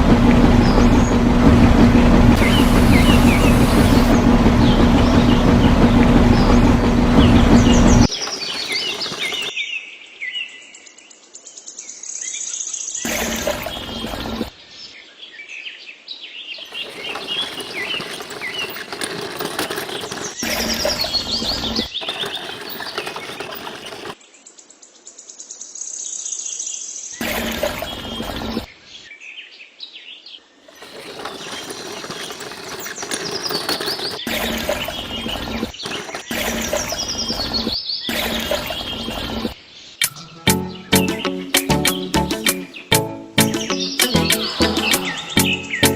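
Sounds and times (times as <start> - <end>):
loud motor hum: 0.0 - 9.5, 16.6 - 24.2, 30.8 - 37.1.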